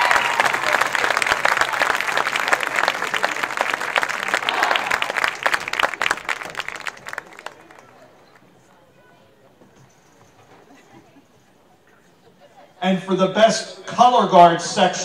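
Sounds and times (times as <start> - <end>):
crowd clapping and cheering: 0.0 - 8.5.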